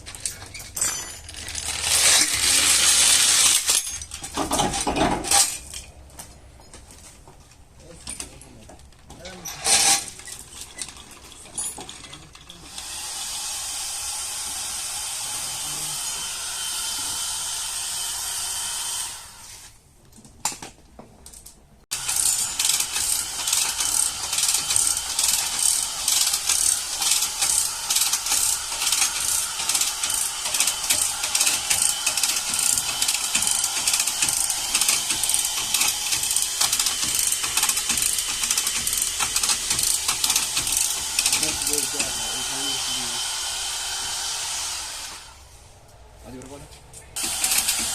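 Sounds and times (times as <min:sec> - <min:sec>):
rhythmic mechanical clatter of tool: 0:00.0 - 0:05.9, 0:09.3 - 0:12.9, 0:21.9 - 0:43.1, 0:47.2 - 0:47.9.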